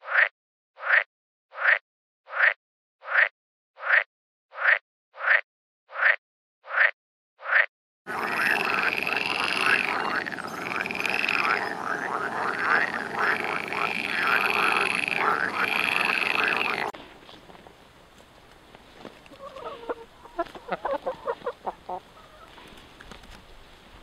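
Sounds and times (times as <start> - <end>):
frogs croaking: 7.5 - 17.0.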